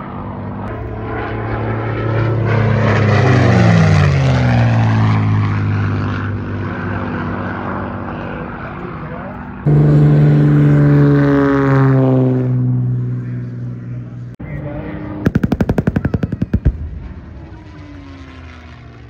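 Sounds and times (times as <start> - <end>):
propeller aircraft engine passing: 0.0 - 19.0
rapid sharp pops: 15.3 - 16.9.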